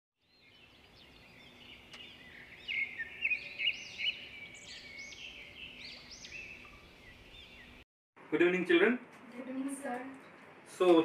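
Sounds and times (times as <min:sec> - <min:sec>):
birds chirping: 0:00.2 - 0:07.8.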